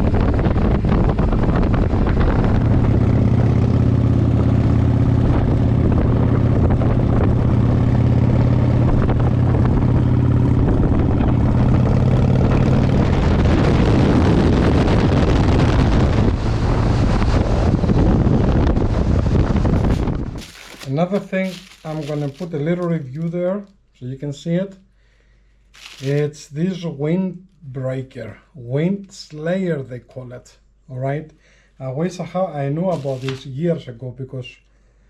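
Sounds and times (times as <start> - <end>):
wind rumble on microphone: 0.0 - 20.5
vehicle engine running: 0.5 - 14.8.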